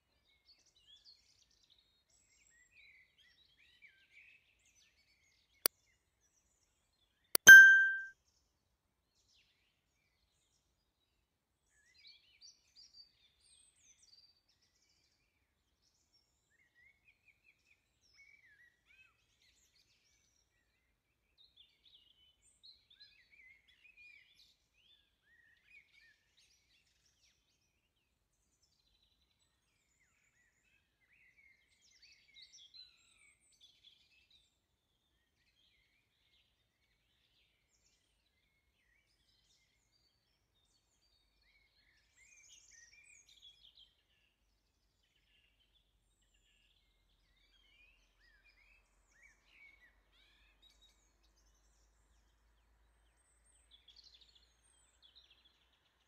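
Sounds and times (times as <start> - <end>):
faint birdsong chirps and trills: 28.4 - 56.0.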